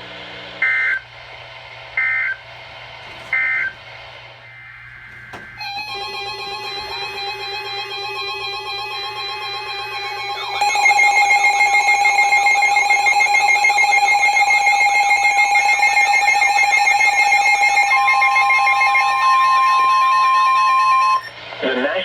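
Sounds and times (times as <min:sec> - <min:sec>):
steady high alarm tone: 0:03.1 - 0:03.8, 0:04.5 - 0:21.4
warbling alarm tone: 0:03.1 - 0:03.8, 0:04.5 - 0:21.4.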